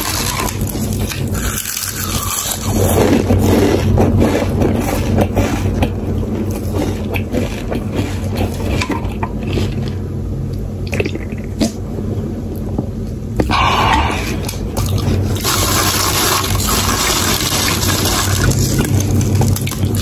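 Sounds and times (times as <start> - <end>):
potato chips crunching: 0.0 - 10.0, 13.5 - 20.0.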